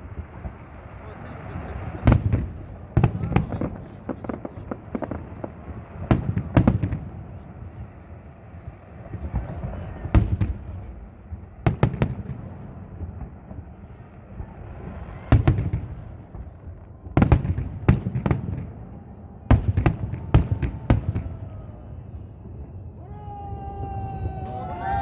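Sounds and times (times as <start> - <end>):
fireworks bursting in sharp bangs: 0.0 - 8.0, 11.4 - 18.8
crowd voices: 18.5 - 25.0.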